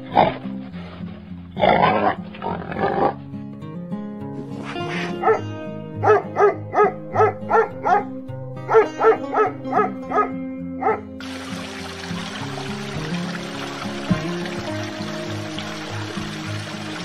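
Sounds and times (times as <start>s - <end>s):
background music: 0.0s - 17.0s
dog barking: 4.6s - 8.1s, 8.7s - 11.1s.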